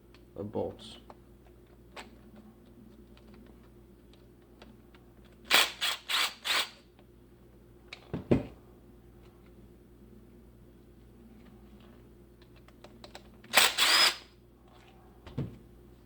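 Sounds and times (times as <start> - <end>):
tool set down with thud: 8.1 - 8.6.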